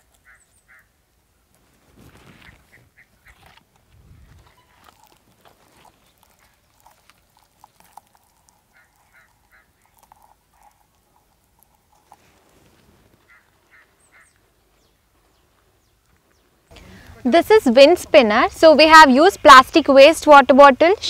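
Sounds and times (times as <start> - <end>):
distant bird calls: 0.0 - 1.0, 2.3 - 3.6, 8.3 - 12.4, 13.0 - 17.1.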